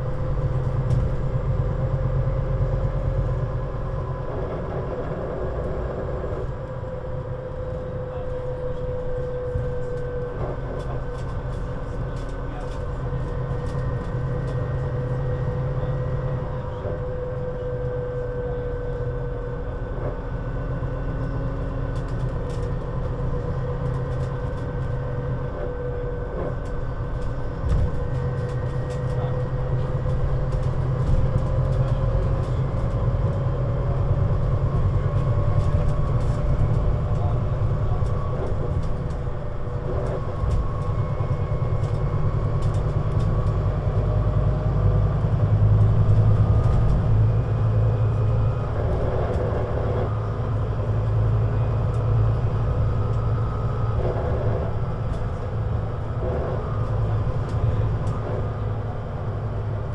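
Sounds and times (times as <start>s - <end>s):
bus diesel engine droning: 0.0s - 59.9s.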